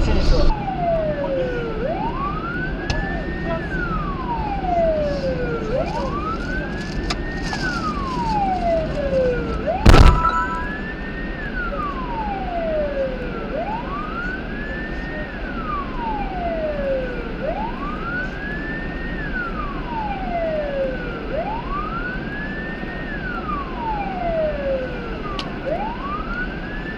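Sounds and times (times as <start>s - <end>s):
police siren wailing: 0.0s - 26.9s
road and engine noise: 0.0s - 26.9s.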